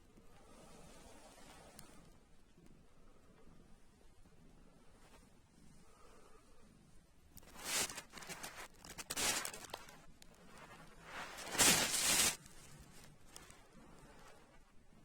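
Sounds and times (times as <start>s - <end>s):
rustling and handling noise: 7.1s - 14.9s.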